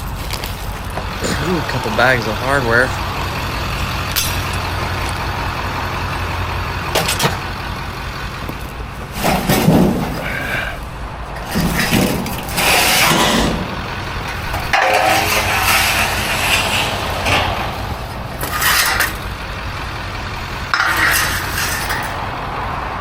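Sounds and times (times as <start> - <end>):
steady low hum: 0.0 - 22.8
metal hardware clinking and rattling: 4.0 - 5.2, 6.9 - 7.4, 8.5 - 22.3.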